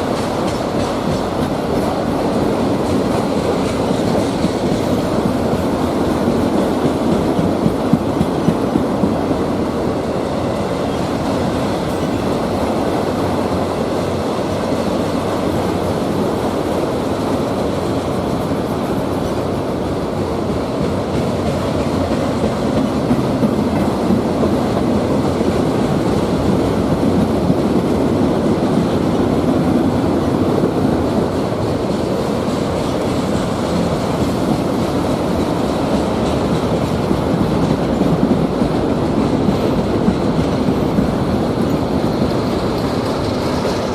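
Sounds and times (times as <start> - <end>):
freight train rolling past: 0.0 - 43.9
train wheel clatter: 0.0 - 43.9.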